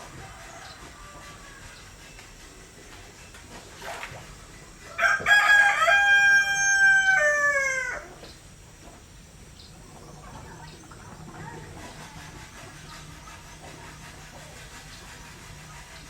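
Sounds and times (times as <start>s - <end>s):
rooster crowing: 0.1s - 1.8s, 4.9s - 8.1s.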